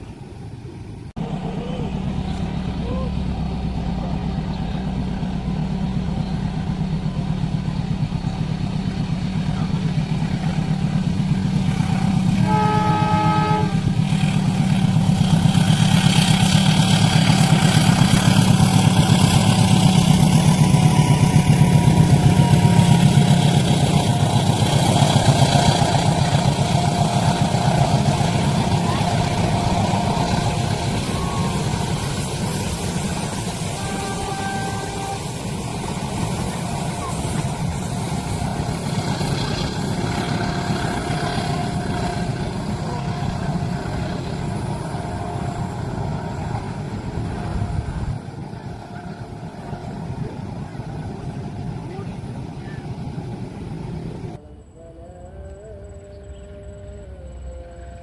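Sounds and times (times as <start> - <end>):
wheel and rail noise: 0.0 - 54.4
train passing with low rumble: 0.0 - 58.0
train horn: 11.6 - 52.1.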